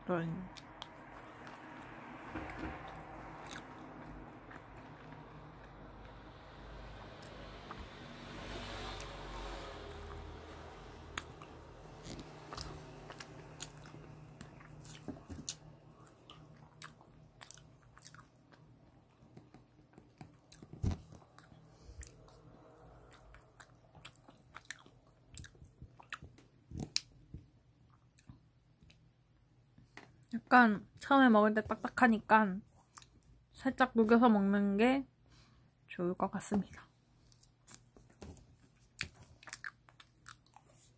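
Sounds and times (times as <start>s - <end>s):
person chewing crunchy food: 2.6s - 6.2s, 8.8s - 27.2s, 37.2s - 40.9s.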